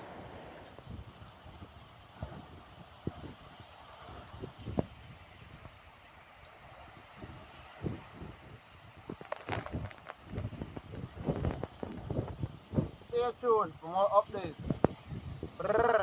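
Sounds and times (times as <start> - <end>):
heavy rain hissing: 0.0 - 0.8
wind buffeting microphone: 0.0 - 13.4, 14.3 - 16.0.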